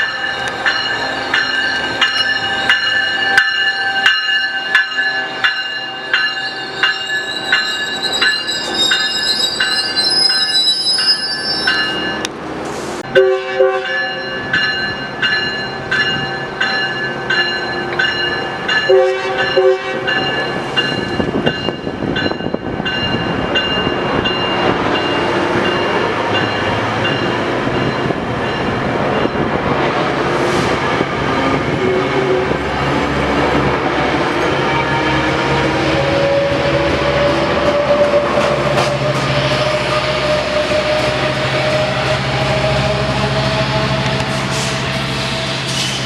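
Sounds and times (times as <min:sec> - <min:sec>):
bell ringing: 0:00.0 - 0:12.3
train rumble: 0:00.0 - 0:46.0
wheels clacking on rails: 0:00.0 - 0:46.0
train horn blast: 0:13.0 - 0:14.2, 0:18.9 - 0:20.1.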